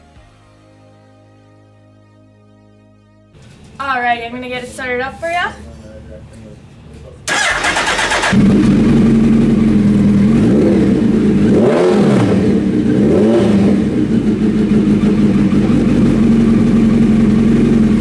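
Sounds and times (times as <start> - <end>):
motorcycle engine idling and revving: 7.3 - 18.0
motorcycle engine starting: 7.3 - 18.0.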